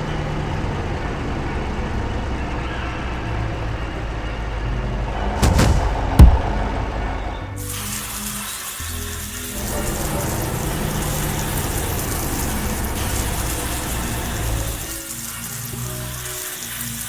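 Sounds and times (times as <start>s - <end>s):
loud rushing noise: 5.4s - 6.6s.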